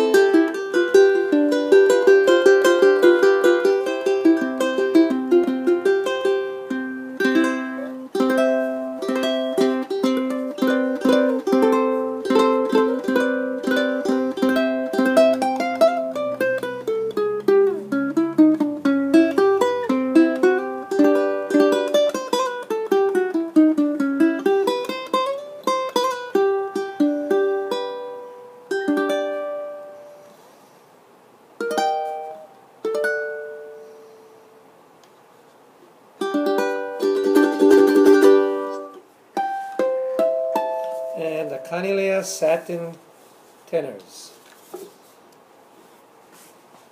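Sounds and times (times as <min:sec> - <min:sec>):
ukulele plucked and strummed: 0:00.0 - 0:30.3, 0:31.6 - 0:34.2, 0:36.2 - 0:42.2.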